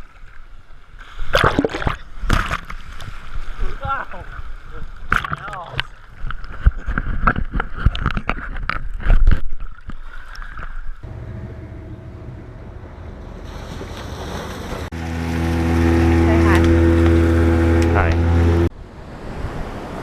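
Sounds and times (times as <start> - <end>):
paddle splashing and knocking: 1.2 - 3.7, 12.9 - 18.7
steady motor hum: 11.0 - 18.7.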